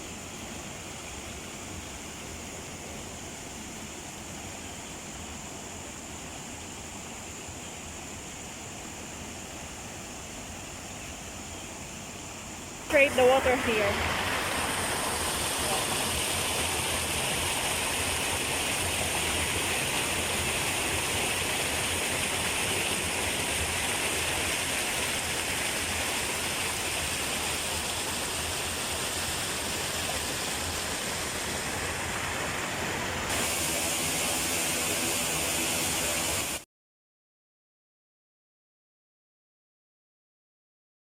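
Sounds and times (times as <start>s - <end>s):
water pouring over waterfall: 12.9s - 36.6s.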